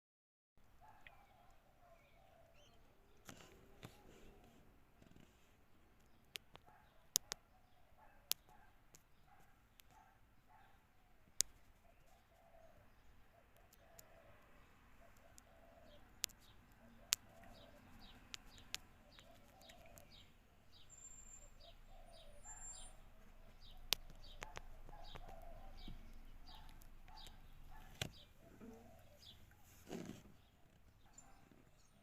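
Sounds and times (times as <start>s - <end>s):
birds chirping: 0.6s - 32.0s
lower bird calls: 0.8s - 5.4s, 6.1s - 32.0s
sharp clicks: 6.0s - 7.4s, 8.3s - 9.1s, 16.1s - 20.3s, 23.5s - 28.2s.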